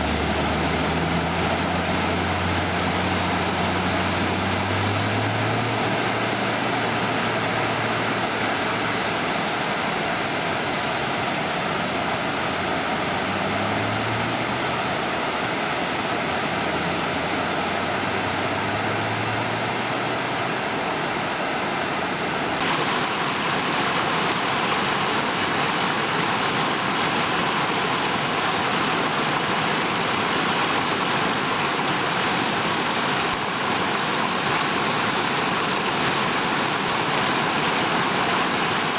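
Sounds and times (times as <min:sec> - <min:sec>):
floodwater rushing in creek: 0:00.0 - 0:38.9
low hum of passing vehicles: 0:00.0 - 0:38.9.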